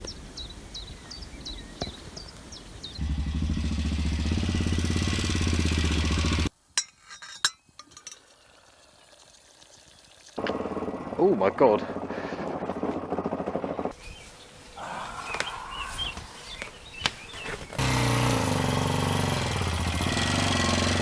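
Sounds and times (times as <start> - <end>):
motorcycle engine running: 3.0 - 6.5, 10.4 - 14.0, 17.8 - 21.0.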